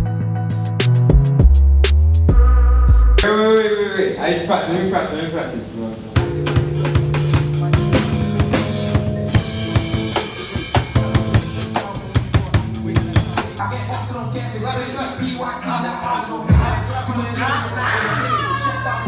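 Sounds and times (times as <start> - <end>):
drum-kit beat: 0.0 - 3.2, 6.2 - 13.6, 16.4 - 17.2
held low notes: 6.2 - 13.6.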